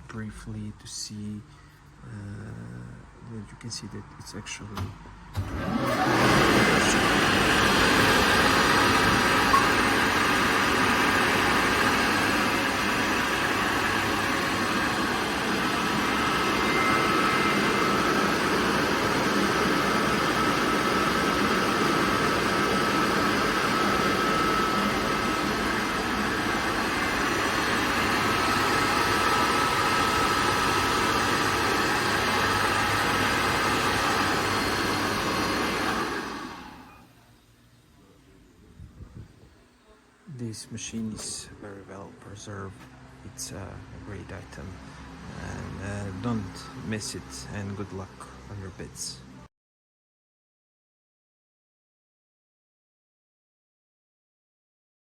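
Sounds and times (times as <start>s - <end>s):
air compressor running: 4.8s - 37.2s.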